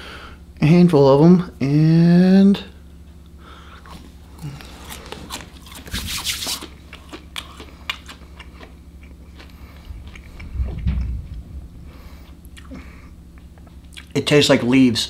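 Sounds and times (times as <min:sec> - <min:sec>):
crunching and chewing: 0:03.6 - 0:14.2
loud low bump: 0:09.9 - 0:13.4.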